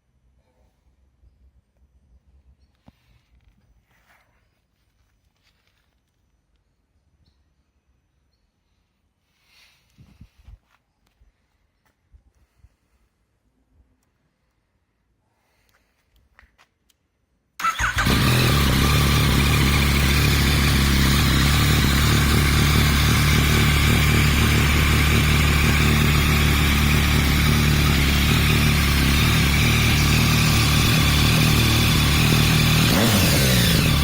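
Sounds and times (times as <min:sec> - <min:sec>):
motorcycle engine idling: 0:17.6 - 0:34.0
motorcycle engine starting: 0:17.6 - 0:34.0.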